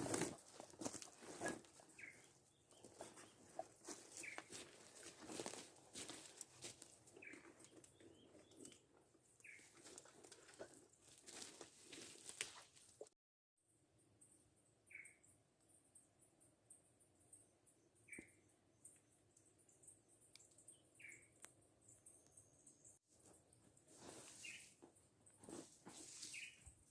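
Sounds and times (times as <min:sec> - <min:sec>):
rustling and clicking of handling: 0:00.0 - 0:13.1
bird chirping: 0:01.5 - 0:05.4, 0:07.1 - 0:10.0, 0:14.2 - 0:23.6, 0:24.3 - 0:24.8, 0:26.1 - 0:26.8.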